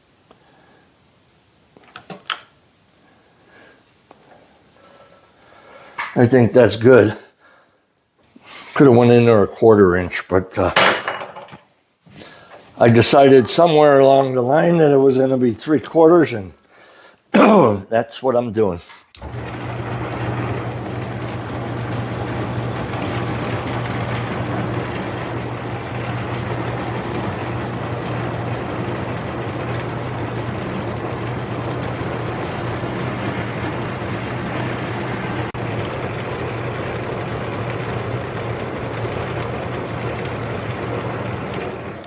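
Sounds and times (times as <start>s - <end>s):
metal lathe cutting steel: 19.2s - 42.0s.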